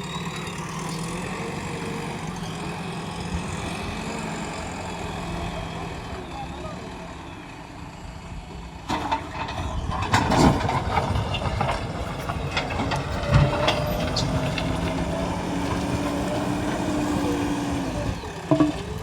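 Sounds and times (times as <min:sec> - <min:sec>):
diesel engine running: 0:00.0 - 0:19.0
metallic clanks and knocks: 0:18.5 - 0:19.0.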